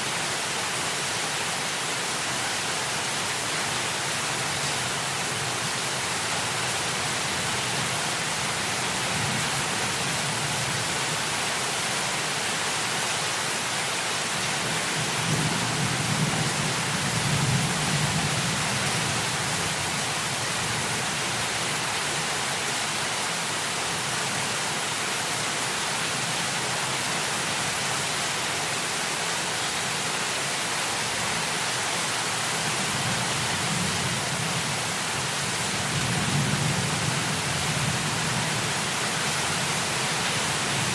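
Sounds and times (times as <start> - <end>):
heavy rain hissing: 0.0 - 40.9.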